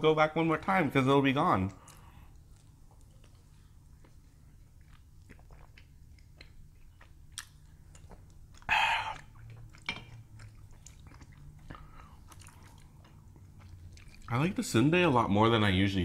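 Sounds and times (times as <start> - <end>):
people chewing and biting: 1.8 - 14.4.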